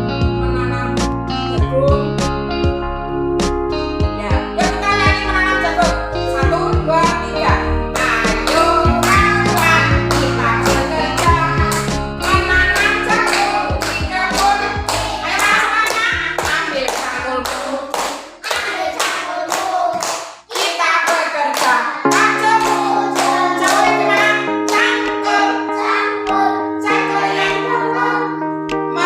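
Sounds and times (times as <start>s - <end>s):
song with singing and instruments: 0.0s - 18.8s
steady clapping beat: 7.9s - 25.6s.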